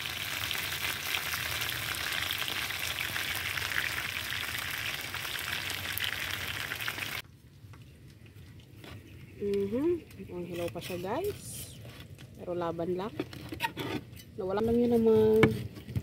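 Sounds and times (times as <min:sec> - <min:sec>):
oil sizzling and crackling: 0:00.0 - 0:07.2.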